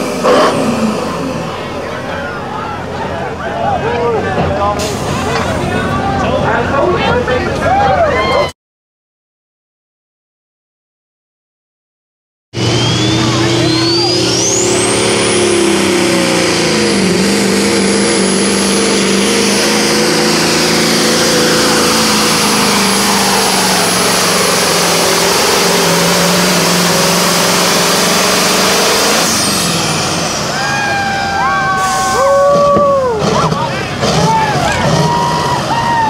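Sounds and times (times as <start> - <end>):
truck engine under load: 0.0 - 8.2, 12.6 - 36.0
turbocharger whistle: 12.6 - 36.0.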